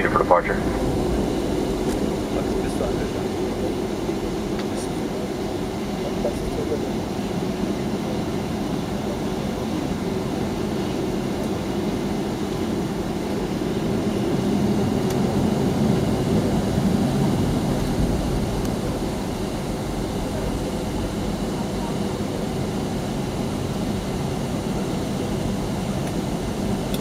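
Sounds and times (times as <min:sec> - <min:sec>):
jet engines rumbling in cabin: 0:00.0 - 0:27.0.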